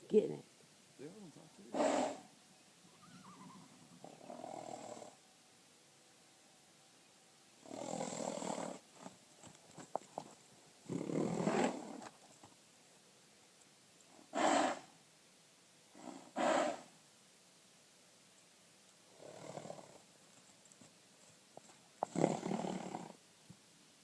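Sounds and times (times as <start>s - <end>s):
horse growling: 1.7s - 2.3s, 3.0s - 5.2s, 7.6s - 9.1s, 10.8s - 12.1s, 14.2s - 14.9s, 15.9s - 16.9s, 19.1s - 20.1s, 22.0s - 23.2s.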